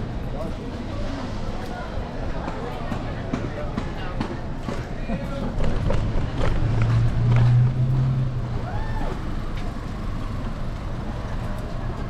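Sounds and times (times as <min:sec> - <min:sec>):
vehicle engine hum: 0:04.5 - 0:12.0.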